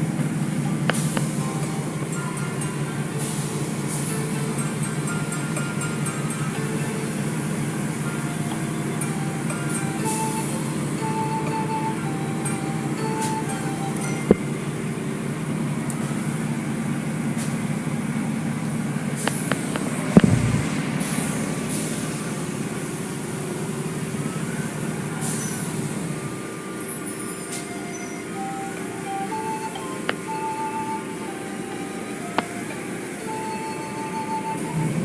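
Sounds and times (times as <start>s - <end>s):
car wash machinery drone: 0.0s - 35.0s
sharp knocks: 20.2s - 20.8s.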